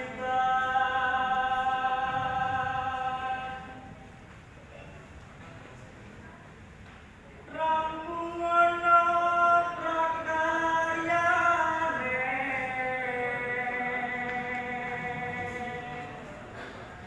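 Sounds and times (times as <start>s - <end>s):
man singing unaccompanied: 0.0s - 3.9s, 7.5s - 16.5s.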